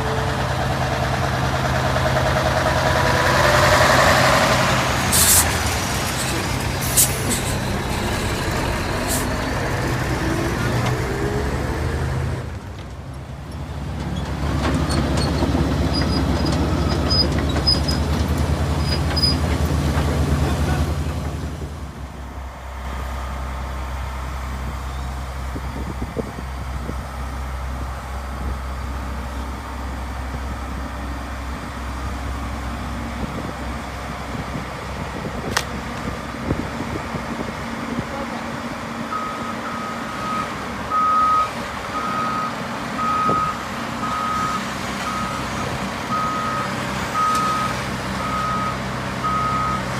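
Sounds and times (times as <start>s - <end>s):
heavy diesel engine running: 0.0s - 49.9s
reversing alarm beeping: 39.1s - 49.9s.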